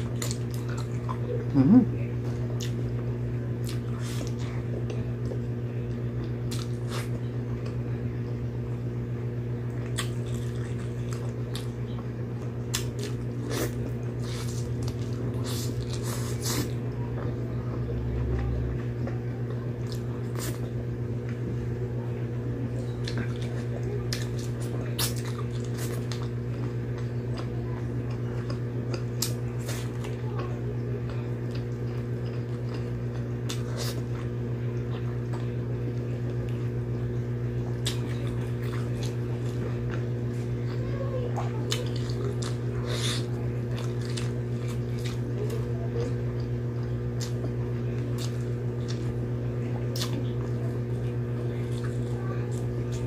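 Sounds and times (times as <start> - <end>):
wet chewing: 0.0 - 1.6, 3.6 - 5.5, 9.7 - 11.8, 12.6 - 17.3, 22.8 - 35.6, 37.7 - 40.8, 41.4 - 53.0
low hum: 0.0 - 29.5.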